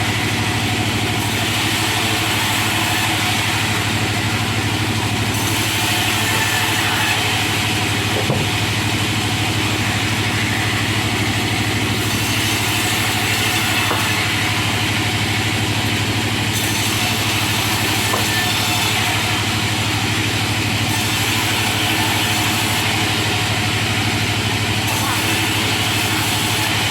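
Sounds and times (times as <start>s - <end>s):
wood-cutting machine humming: 0.0s - 26.9s.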